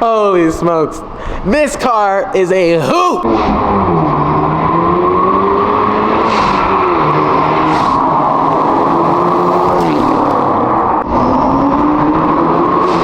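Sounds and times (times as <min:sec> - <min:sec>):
car engine accelerating: 0:03.2 - 0:13.0.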